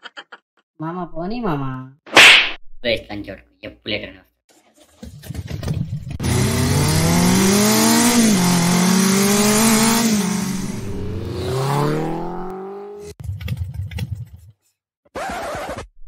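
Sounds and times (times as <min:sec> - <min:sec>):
motorcycle engine revving: 0:06.1 - 0:13.2.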